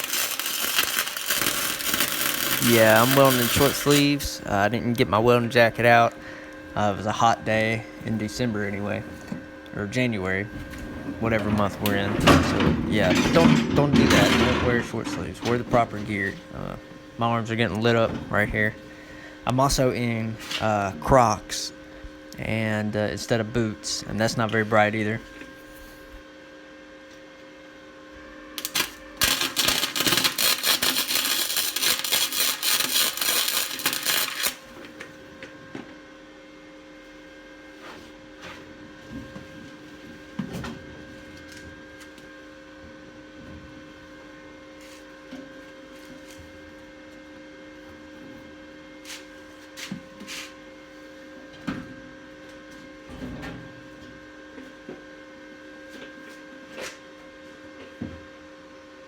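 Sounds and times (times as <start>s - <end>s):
crackling welding arc: 0.0s - 4.4s, 28.6s - 34.6s
steady hum: 0.0s - 56.4s.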